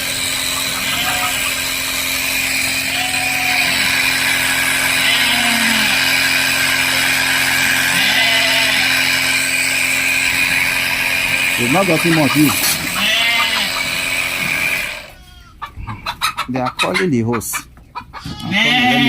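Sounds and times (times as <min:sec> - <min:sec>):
spray pump engine running: 0:00.0 - 0:15.1
hose sprayer hissing: 0:00.0 - 0:15.2.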